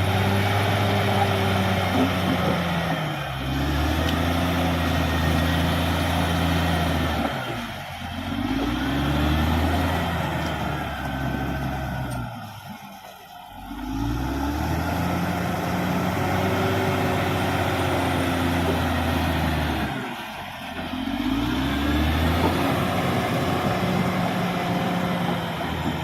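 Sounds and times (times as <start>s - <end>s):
bulldozer diesel engine revving: 0.0s - 26.0s.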